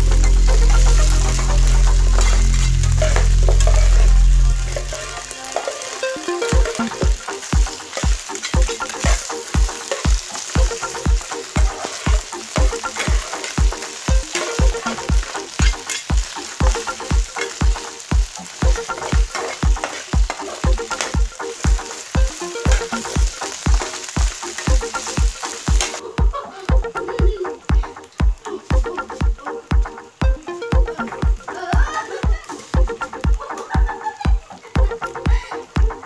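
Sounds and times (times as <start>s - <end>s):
rhythmic low thumps: 0.0s - 5.5s, 6.1s - 36.0s
metal spatula tossing food: 0.0s - 26.0s
food sizzling in hot oil: 0.0s - 36.0s.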